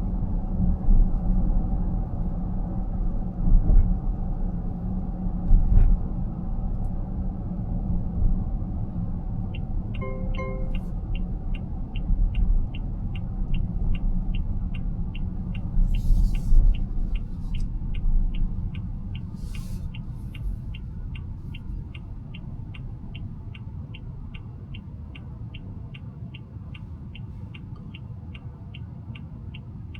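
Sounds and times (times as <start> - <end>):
road noise in car cabin: 0.0 - 29.9
turn signal ticking: 6.3 - 29.9.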